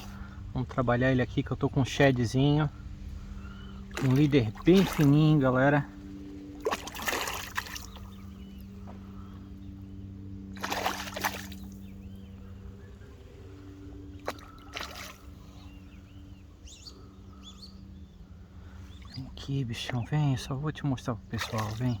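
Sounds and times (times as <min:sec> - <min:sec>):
steady low hum: 0:00.0 - 0:22.0
fish splashing at water surface: 0:03.9 - 0:05.2, 0:06.6 - 0:08.2, 0:10.6 - 0:11.8, 0:14.2 - 0:15.4, 0:21.4 - 0:22.0.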